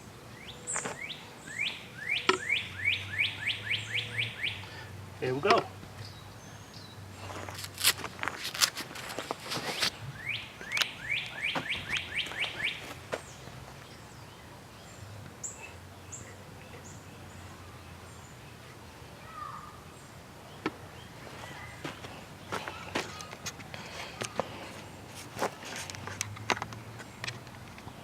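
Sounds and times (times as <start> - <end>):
bird singing: 0.0 - 7.4, 9.9 - 24.8.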